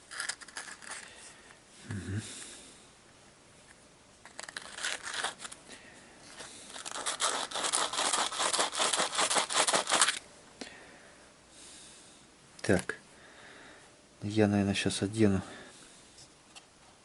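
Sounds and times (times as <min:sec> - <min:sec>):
sandpaper scratching metal: 0:06.7 - 0:10.2.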